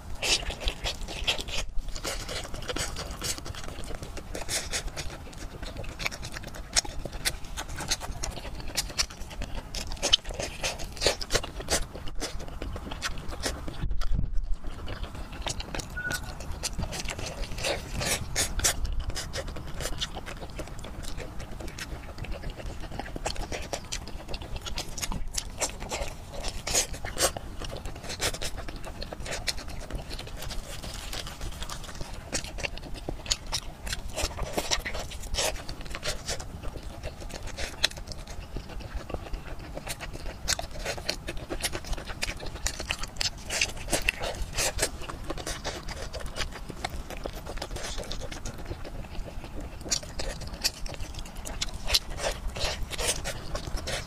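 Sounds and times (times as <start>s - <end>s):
wet chewing and lip-smacking: 0.0s - 54.0s.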